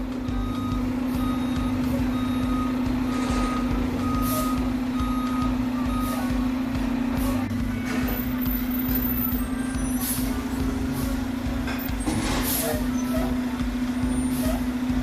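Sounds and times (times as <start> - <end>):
truck engine running: 0.0 - 15.0
reversing alarm beeps: 0.2 - 6.5.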